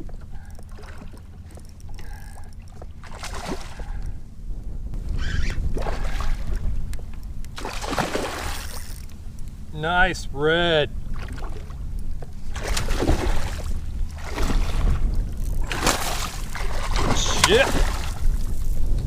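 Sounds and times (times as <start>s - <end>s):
wind rumbling on microphone: 0.0s - 19.0s
water splashing: 0.7s - 4.0s, 5.7s - 6.7s, 7.6s - 9.0s, 12.5s - 18.6s.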